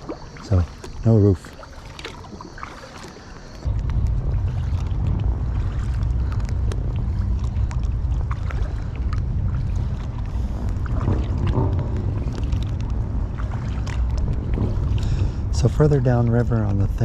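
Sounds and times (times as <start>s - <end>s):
paddle clicks and drips: 0.0s - 17.0s
wind buffeting microphone: 3.4s - 17.0s.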